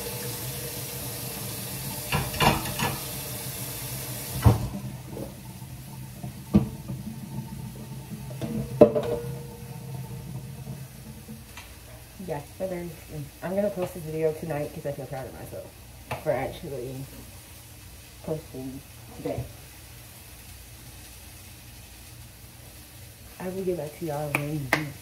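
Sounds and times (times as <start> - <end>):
water running into sink: 0.0 - 15.6
burgers sizzling in a frying pan: 0.0 - 25.0
dishes knocking: 2.1 - 3.0, 6.2 - 11.5.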